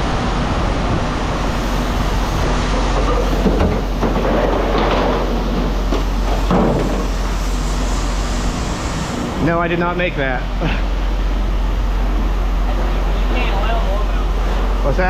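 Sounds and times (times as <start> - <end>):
heavy engine humming: 0.0 - 15.0.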